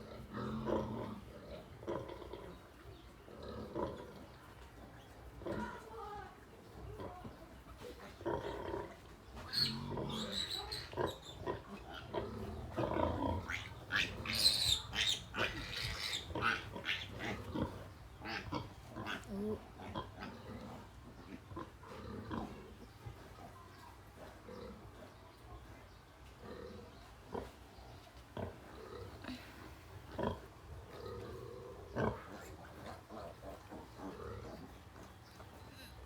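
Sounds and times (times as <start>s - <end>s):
piglets squealing: 9.5s - 11.4s, 13.4s - 19.3s.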